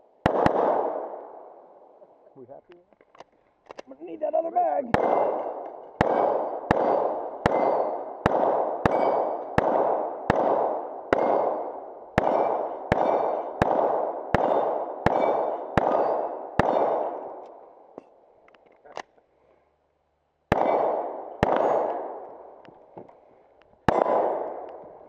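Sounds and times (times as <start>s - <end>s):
pistol shots with ringing echo: 0.1s - 2.0s, 4.9s - 18.0s, 20.5s - 22.6s, 23.8s - 25.0s.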